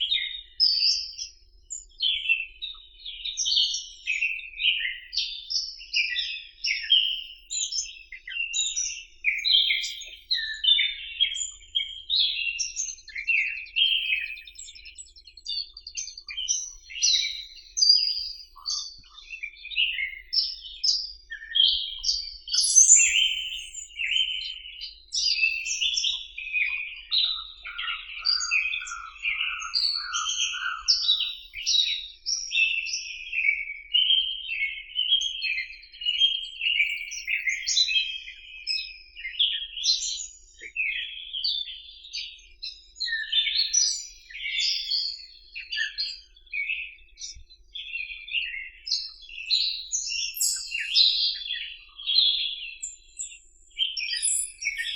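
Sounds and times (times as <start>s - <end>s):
songbirds chirping chorus: 0.0s - 54.9s.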